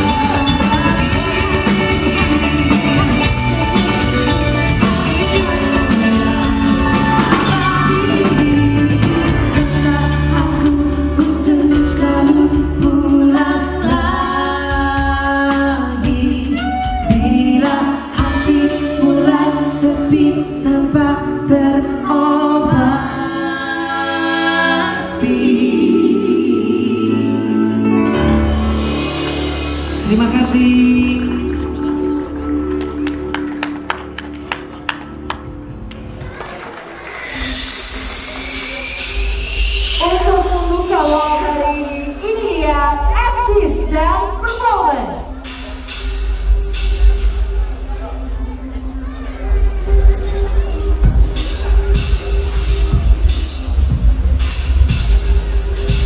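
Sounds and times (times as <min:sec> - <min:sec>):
lead singer singing: 0:00.0 - 0:27.8
live band playing: 0:00.0 - 0:56.0.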